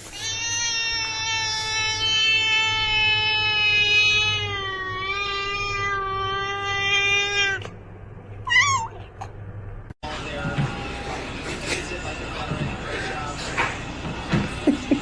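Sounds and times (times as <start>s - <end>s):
cat meowing: 0.0s - 7.7s, 8.4s - 9.1s
cat yowling: 0.0s - 7.7s, 8.4s - 9.1s.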